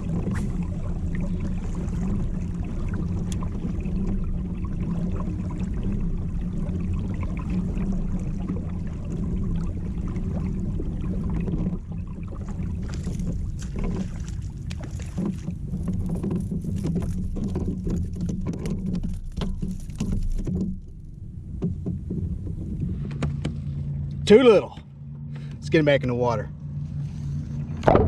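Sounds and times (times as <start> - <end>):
steady low drone: 0.0 - 28.0
clicks and knocks on plastic kayak: 12.8 - 21.0, 21.6 - 23.6.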